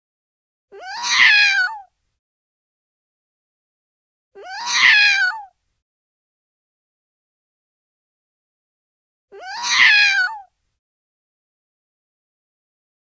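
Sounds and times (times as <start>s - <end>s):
cat meowing: 0.8s - 1.9s, 4.4s - 5.5s, 9.3s - 10.5s.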